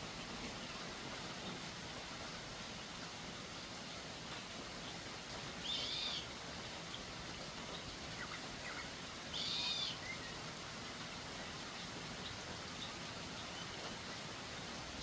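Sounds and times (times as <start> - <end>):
bird call: 5.6 - 6.3, 8.2 - 10.3
faint bird chirps: 5.6 - 6.3, 8.2 - 10.4.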